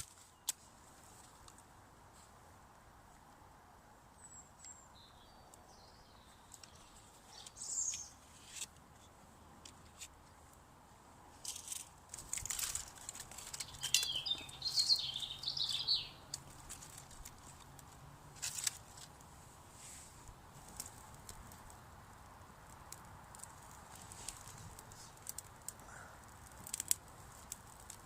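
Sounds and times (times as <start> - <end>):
small birds chirping: 4.1 - 9.1, 12.8 - 17.8.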